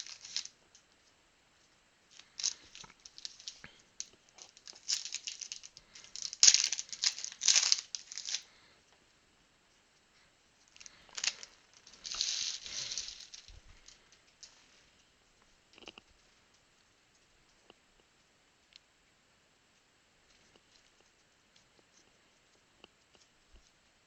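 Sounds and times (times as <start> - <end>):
wrappers tearing and crinkling: 0.0 - 0.5, 2.2 - 3.7, 4.4 - 8.5, 10.8 - 13.5.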